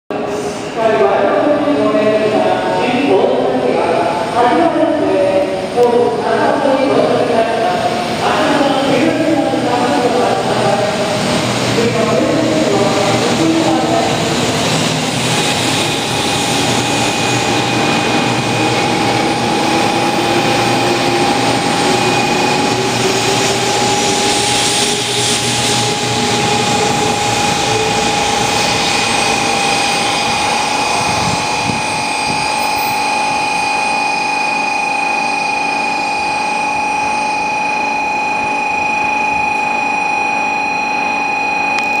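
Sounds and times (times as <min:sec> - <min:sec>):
train wheel noise: 0:00.8 - 0:33.6.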